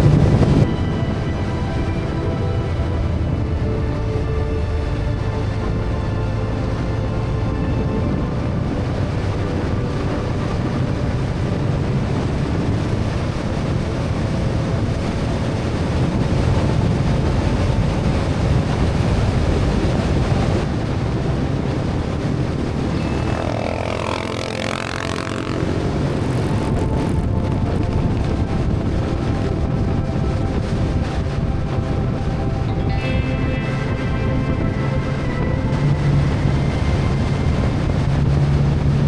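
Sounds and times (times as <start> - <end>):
motorcycle running: 0.0 - 0.7, 5.6 - 31.0, 31.7 - 39.0
wind on microphone: 0.0 - 39.0
wavering pitched sound: 22.6 - 39.0.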